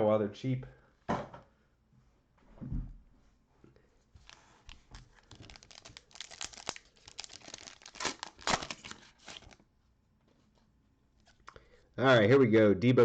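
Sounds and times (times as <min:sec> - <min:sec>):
plastic wrapper tearing and crinkling: 0:04.2 - 0:09.6.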